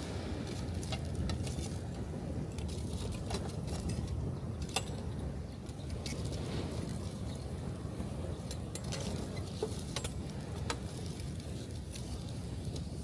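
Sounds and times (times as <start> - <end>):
waves breaking on beach: 0.0 - 2.5.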